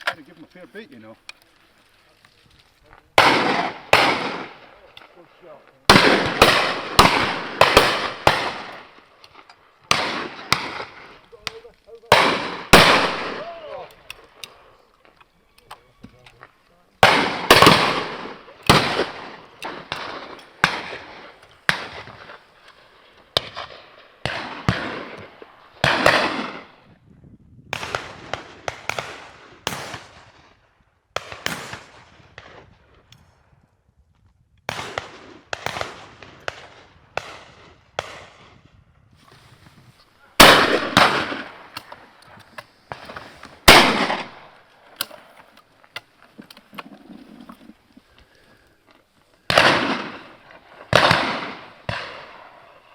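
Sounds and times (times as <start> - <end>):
shotguns firing with echo: 3.1 - 14.7, 17.0 - 26.8, 27.7 - 30.6, 31.2 - 32.8, 34.7 - 38.6, 40.3 - 45.3, 49.4 - 52.9.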